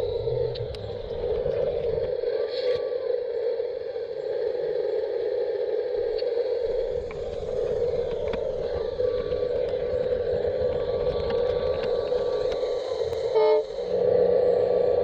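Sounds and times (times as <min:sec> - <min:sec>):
model locomotive humming: 0:13.3 - 0:13.9.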